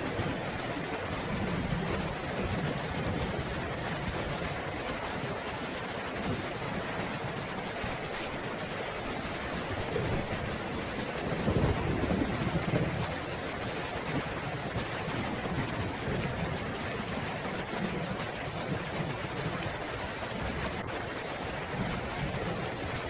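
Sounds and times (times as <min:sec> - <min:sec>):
steady rain falling: 0:00.0 - 0:23.0
low roll of thunder: 0:09.6 - 0:20.9.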